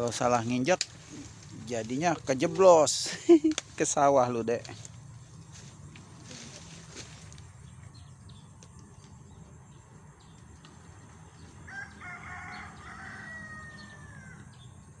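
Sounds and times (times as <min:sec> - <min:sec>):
rooster crowing: 0:11.6 - 0:14.7.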